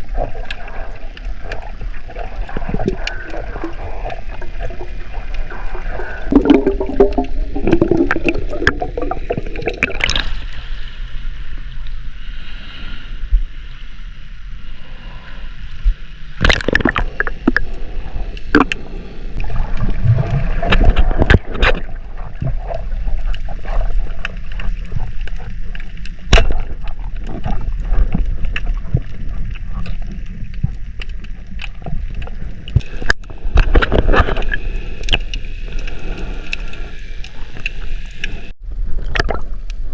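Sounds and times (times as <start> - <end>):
water sloshing and gurgling: 0.0 - 12.2, 13.2 - 39.9
knocks and splashes: 6.3 - 10.3, 16.4 - 17.6, 19.4 - 34.5.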